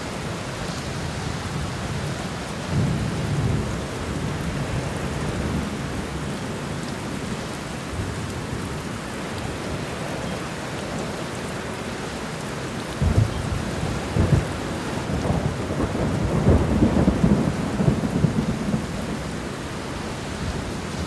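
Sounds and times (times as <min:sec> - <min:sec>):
steady rain: 0:00.0 - 0:21.0
low rumble of thunder: 0:01.2 - 0:06.3, 0:13.0 - 0:21.0.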